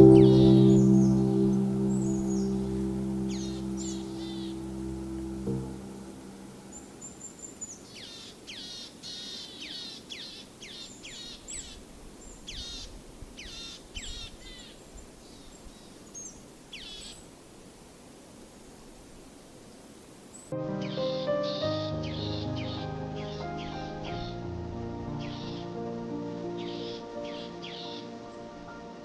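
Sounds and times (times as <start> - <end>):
songbird chirping: 0.0 - 17.5, 18.7 - 29.0
outdoor background noise: 0.0 - 20.6.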